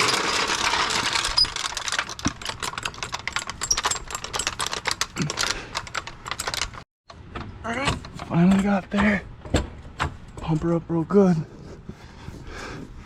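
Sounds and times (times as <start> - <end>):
floor jack rolling and clattering: 0.0 - 6.8.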